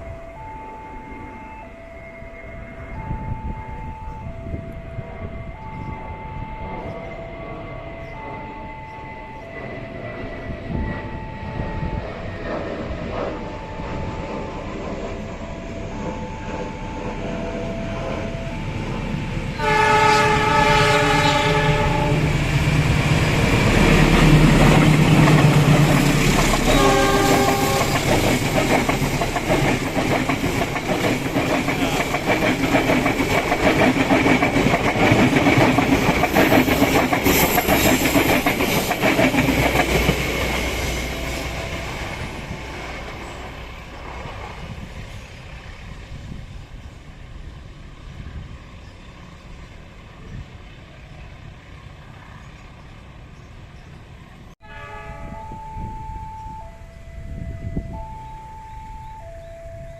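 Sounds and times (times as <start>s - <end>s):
train wheels clattering: 11.6s - 45.4s
train horn blast: 17.5s - 22.6s, 23.6s - 28.5s, 54.6s - 58.0s.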